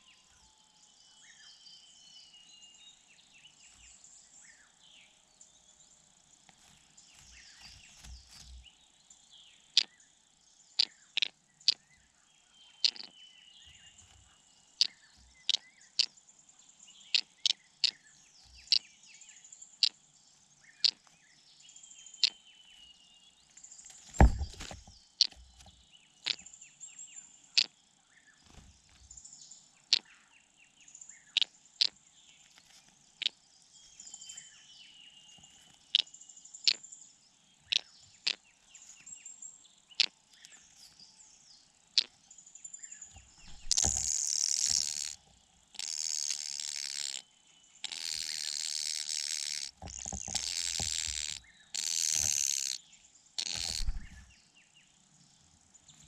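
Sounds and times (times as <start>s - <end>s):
bird chip calls: 10.7s - 16.2s, 17.0s - 19.0s, 31.1s - 32.4s, 37.6s - 39.1s, 42.8s - 52.8s, 53.4s - 54.5s.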